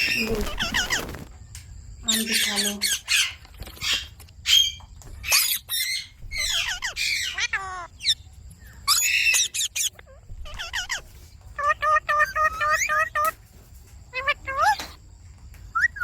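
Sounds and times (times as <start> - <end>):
parrot squawking: 0.0 - 1.2, 2.1 - 8.2, 8.8 - 13.4, 14.1 - 15.0.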